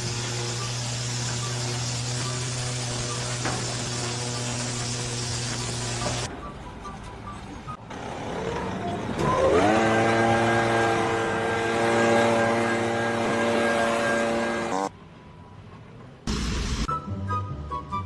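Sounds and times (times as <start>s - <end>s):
motor whirring at high pitch: 0.0s - 6.3s, 9.2s - 14.9s.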